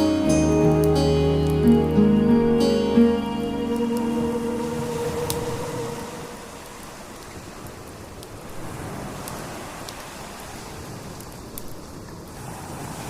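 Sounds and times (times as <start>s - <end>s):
fire crackling and popping: 6.4s - 12.4s.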